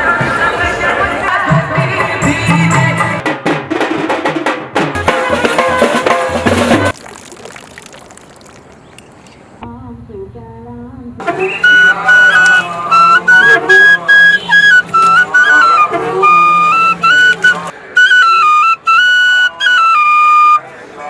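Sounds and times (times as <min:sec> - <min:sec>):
background music with drums: 0:00.0 - 0:06.9
flute-led music: 0:05.0 - 0:06.9, 0:11.2 - 0:20.8
faint tune: 0:11.2 - 0:20.6.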